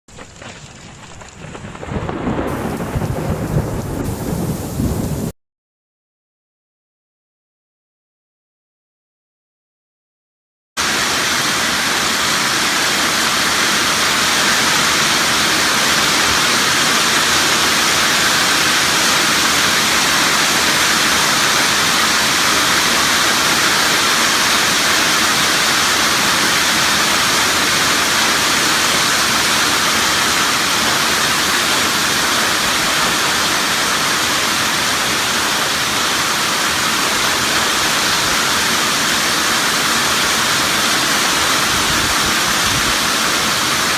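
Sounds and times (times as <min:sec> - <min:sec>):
hail and heavy rain pelting: 0:00.1 - 0:05.3, 0:10.8 - 0:43.9.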